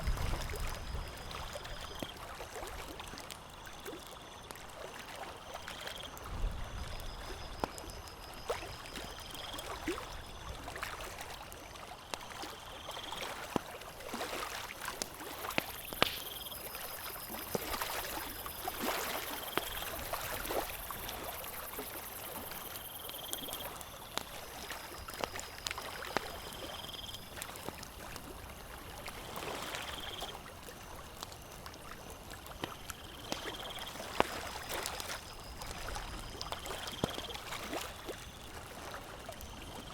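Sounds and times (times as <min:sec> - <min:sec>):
campfire crackling and popping: 0:13.0 - 0:38.7.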